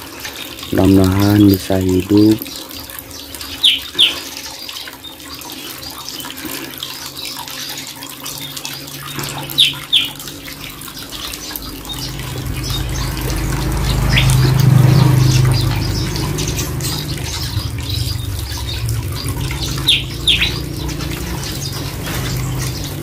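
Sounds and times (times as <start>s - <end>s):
running water: 0.0s - 23.0s
low hum: 10.2s - 23.0s.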